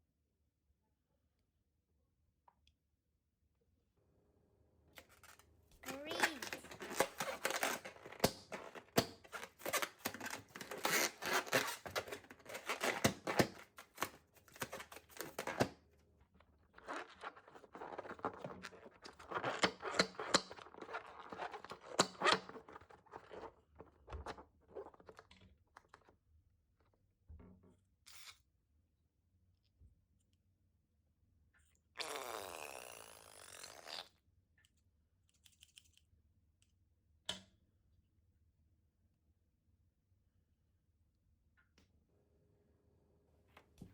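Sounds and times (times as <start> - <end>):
slime balloon crackling: 5.8 - 15.1.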